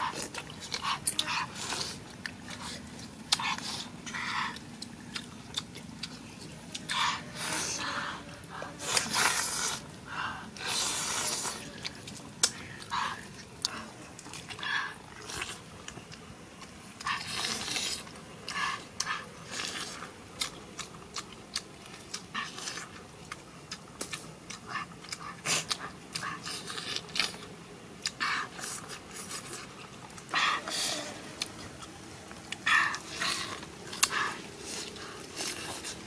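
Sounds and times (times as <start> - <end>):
crunching raw lettuce: 8.8 - 9.9, 10.6 - 36.0.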